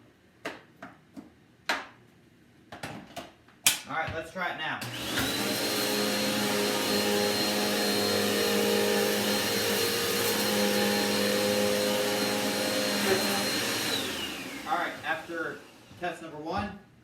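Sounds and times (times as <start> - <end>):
vacuum cleaner running: 4.8 - 16.4.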